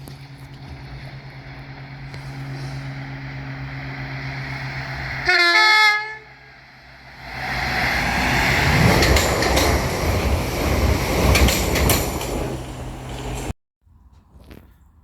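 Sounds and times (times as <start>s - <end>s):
train rumbling: 0.0s - 13.6s
two-tone train horn: 5.2s - 6.5s.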